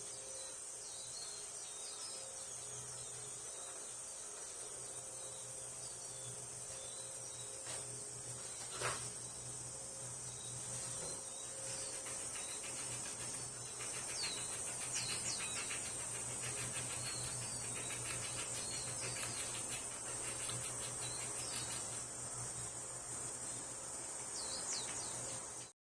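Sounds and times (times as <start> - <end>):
steady low hum: 2.4 - 25.7
squirrel gnawing and crunching: 10.7 - 22.7.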